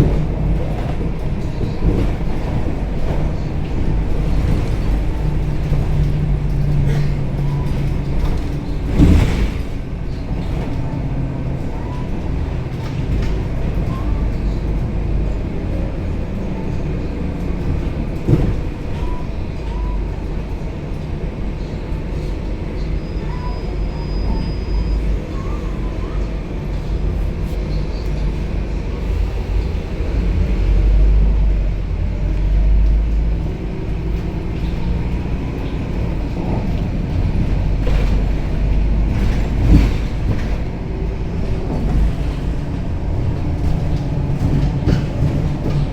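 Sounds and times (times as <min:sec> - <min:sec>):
bus body thumping: 0:00.0 - 0:15.3, 0:17.3 - 0:19.3, 0:33.1 - 0:45.9
bus diesel engine rumbling: 0:00.0 - 0:45.9.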